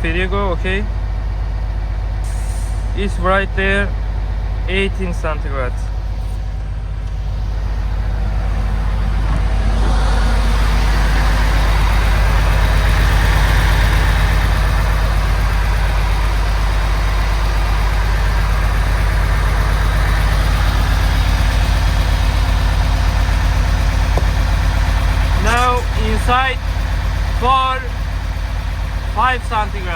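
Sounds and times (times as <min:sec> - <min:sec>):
diesel engine hum: 0:00.0 - 0:29.9
fan rushing: 0:04.7 - 0:15.6.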